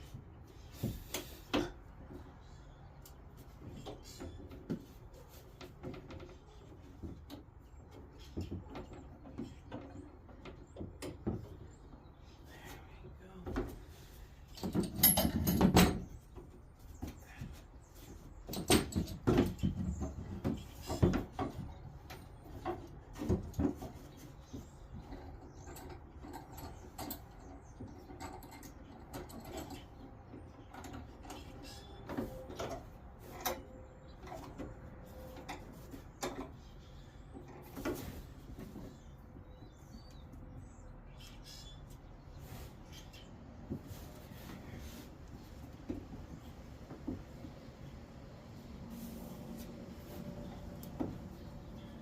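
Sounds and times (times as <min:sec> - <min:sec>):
wood and tools knocking: 0:18.2 - 0:36.8.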